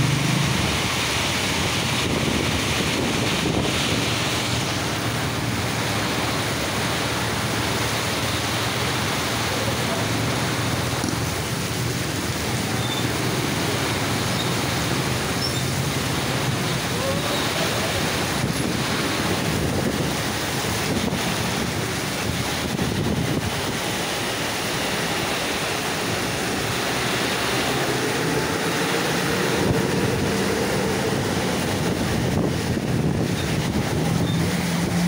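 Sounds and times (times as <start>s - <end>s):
heavy rain: 0.0s - 35.0s
traffic on a wet road: 0.0s - 35.0s
vehicle engine hum: 0.0s - 35.0s
wind buffeting the microphone: 1.5s - 5.7s, 18.1s - 24.1s, 29.3s - 35.0s.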